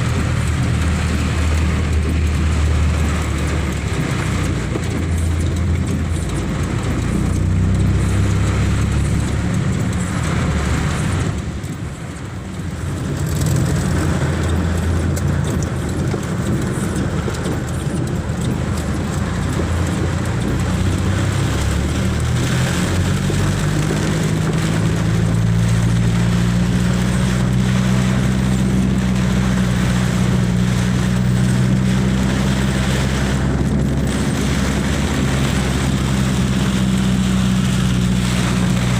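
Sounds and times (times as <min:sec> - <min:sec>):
vehicle engine humming: 0:00.0 - 0:38.9.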